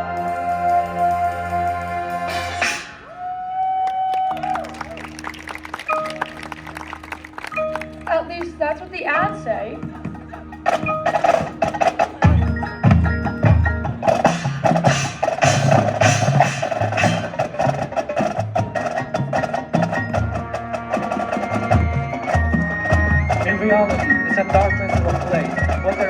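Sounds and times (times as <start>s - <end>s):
marching band playing: 0.0s - 3.1s, 4.7s - 26.0s
drums: 0.0s - 3.6s, 7.7s - 26.0s
mallet percussion: 5.9s - 26.0s.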